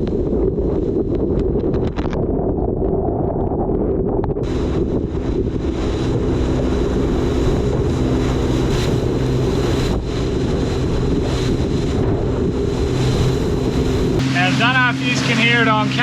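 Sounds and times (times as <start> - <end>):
wind buffeting microphone: 0.0 - 16.0
boat motor running: 4.4 - 16.0.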